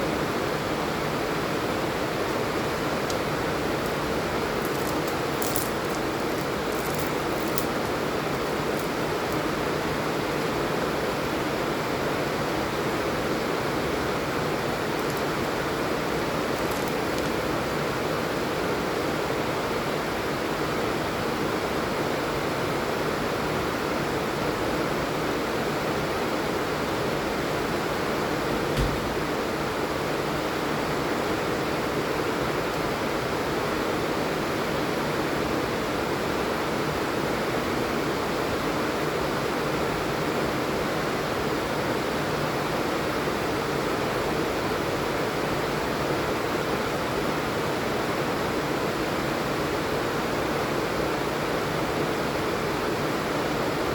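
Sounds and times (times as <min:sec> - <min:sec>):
steady rain falling: 0:00.2 - 0:12.3, 0:13.5 - 0:18.4.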